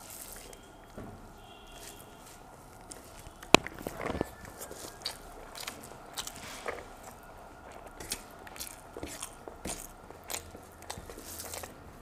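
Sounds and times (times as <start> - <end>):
chewing with crunches: 0.0 - 12.0.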